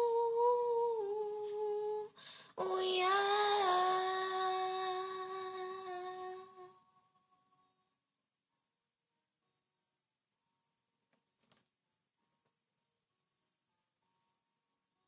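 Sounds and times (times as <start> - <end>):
girl singing wordless notes: 0.0 - 7.0
girl breathing in: 2.1 - 2.6.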